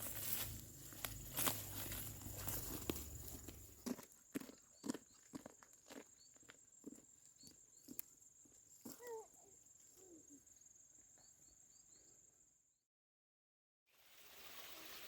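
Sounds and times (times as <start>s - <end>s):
insect chorus buzzing: 0.0s - 4.0s
soft footsteps: 0.0s - 9.1s.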